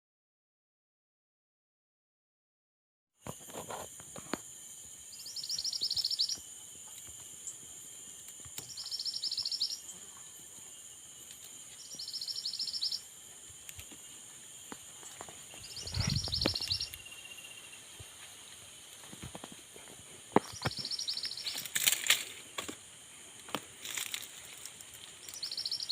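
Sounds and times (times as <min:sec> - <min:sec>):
insects droning: 0:03.2 - 0:25.9
bird trilling: 0:15.6 - 0:17.0.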